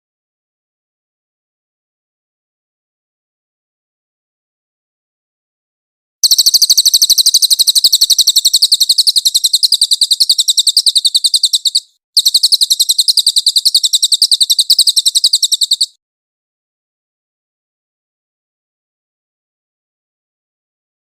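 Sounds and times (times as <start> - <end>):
songbird rapid high trill: 6.2 - 16.0.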